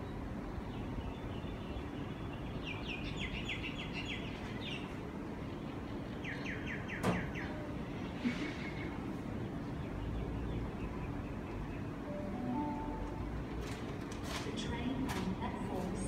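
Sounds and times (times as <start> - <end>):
bird chirping: 0.1 - 8.2, 9.3 - 13.3.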